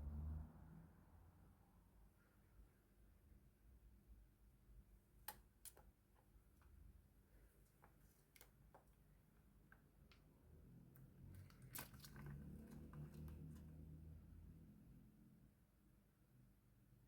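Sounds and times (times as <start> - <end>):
faint clicks and taps: 7.6 - 10.4.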